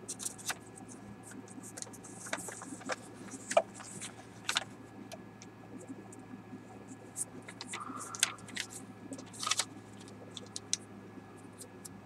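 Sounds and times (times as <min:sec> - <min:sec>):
paper being folded: 0:01.6 - 0:04.7, 0:07.5 - 0:10.7.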